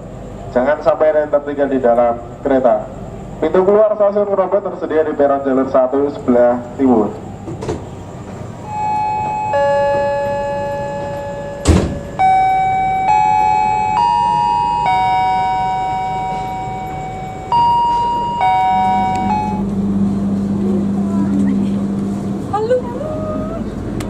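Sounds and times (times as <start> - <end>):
steady low hum: 0.0 - 24.0
chime melody over speaker: 8.7 - 19.7
sharp knock: 11.6 - 12.1.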